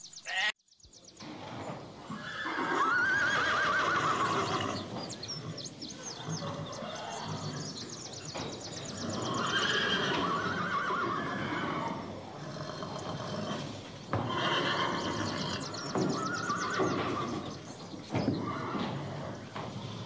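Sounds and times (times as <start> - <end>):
horse whinnying: 2.1 - 5.0, 6.1 - 7.7, 9.0 - 12.1, 12.9 - 17.6, 18.2 - 19.5.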